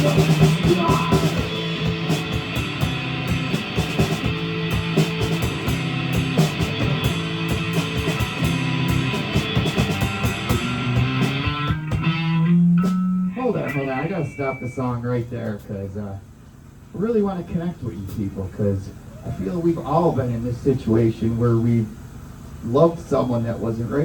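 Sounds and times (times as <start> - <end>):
electric guitar: 0.0 - 14.8
drum kit: 0.0 - 15.8
bass guitar: 0.0 - 20.7.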